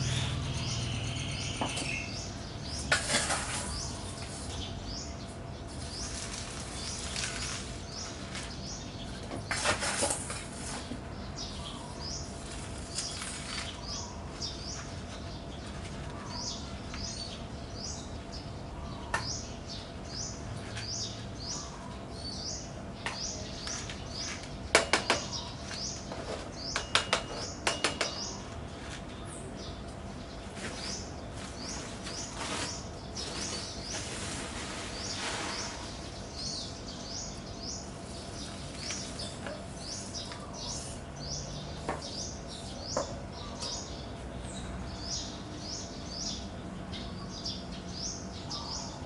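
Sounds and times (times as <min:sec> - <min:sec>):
bird chirping: 0:00.0 - 0:09.3, 0:35.0 - 0:49.0.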